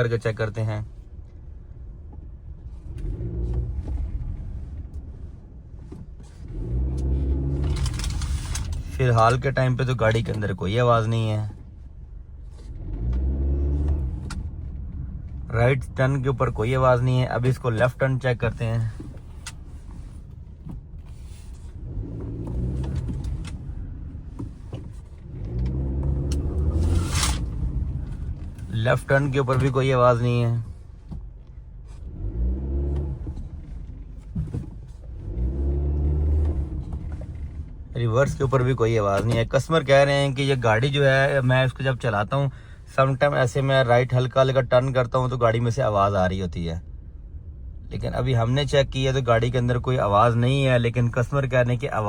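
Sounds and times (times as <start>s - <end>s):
car engine rumbling at low speed: 0.0s - 52.0s.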